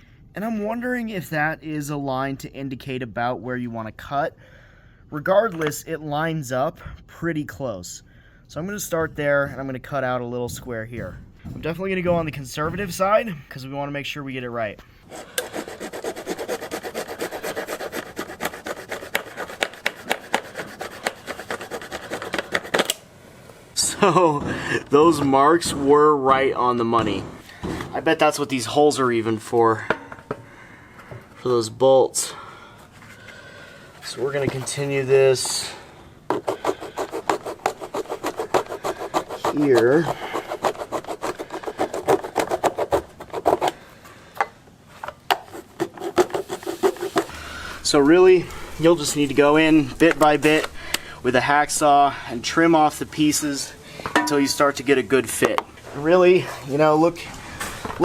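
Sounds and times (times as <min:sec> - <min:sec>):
hacksaw cutting plastic: 0:15.0 - 0:23.0, 0:36.3 - 0:43.8, 0:45.1 - 0:47.4.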